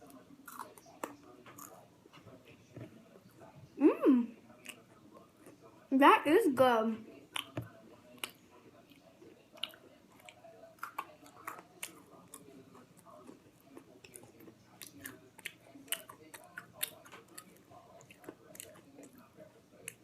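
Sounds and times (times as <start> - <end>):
person chewing crunchy cracker: 0.4 - 1.8, 7.3 - 20.0.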